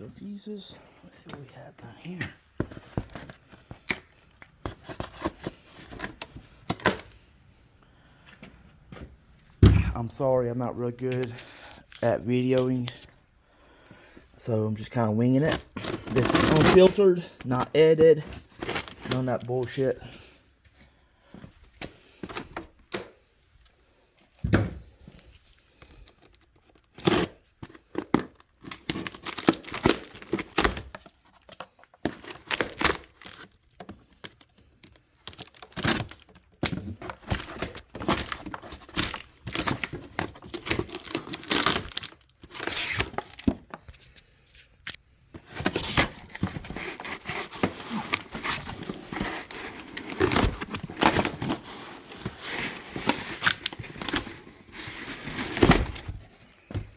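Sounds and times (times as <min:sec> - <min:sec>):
packaging rustling and crinkling: 0:25.2 - 0:56.9
packaging being torn open: 0:34.3 - 0:43.5.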